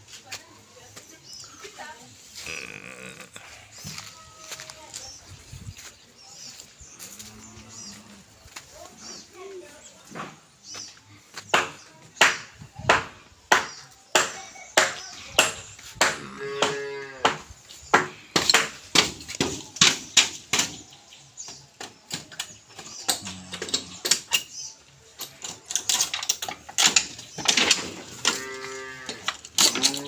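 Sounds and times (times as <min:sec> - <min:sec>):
cattle mooing: 0:28.2 - 0:30.0.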